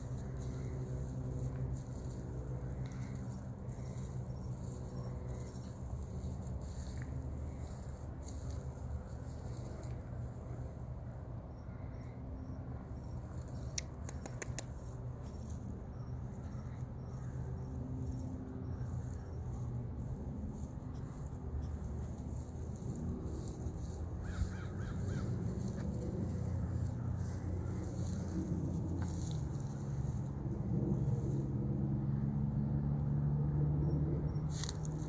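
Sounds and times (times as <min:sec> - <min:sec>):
steady low hum: 0:00.0 - 0:35.0
sharp clicks: 0:13.4 - 0:15.0
cranes calling: 0:16.2 - 0:29.8.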